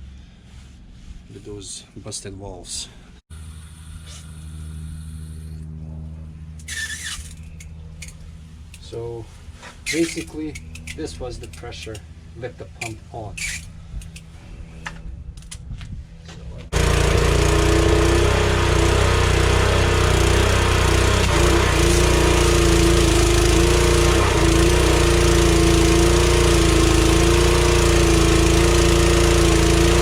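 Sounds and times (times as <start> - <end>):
pressure washer engine running: 16.7 - 30.0.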